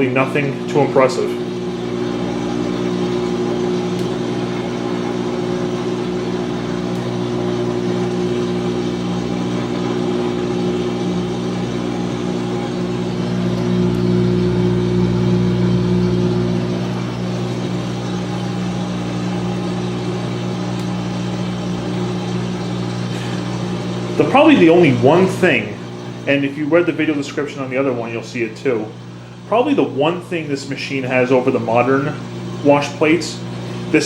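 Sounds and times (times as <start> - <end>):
washing machine humming: 0.0 - 34.0.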